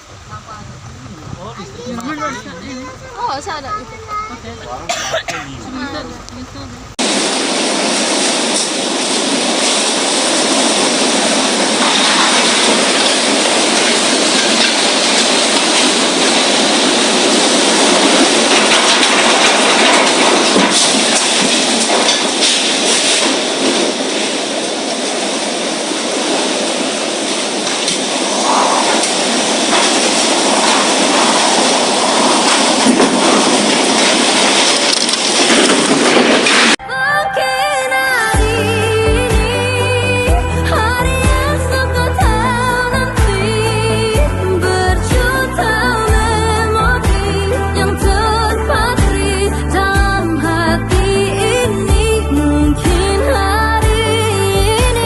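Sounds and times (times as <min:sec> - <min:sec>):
strong wind: 0:00.0 - 0:04.5, 0:05.6 - 0:55.0
heavy rain: 0:00.0 - 0:55.0.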